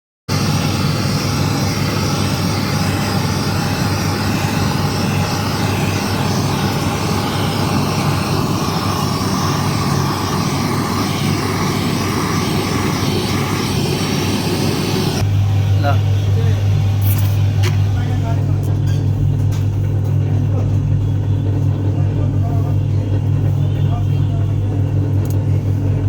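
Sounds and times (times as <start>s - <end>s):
machine droning: 0.3s - 26.0s.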